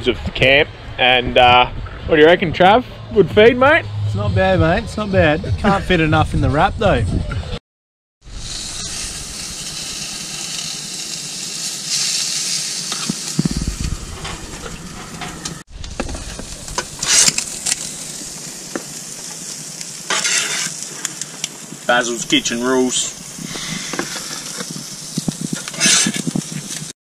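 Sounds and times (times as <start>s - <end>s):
food sizzling on a grill: 8.2s - 26.9s
tongs and spatula scraping grill: 8.4s - 26.9s.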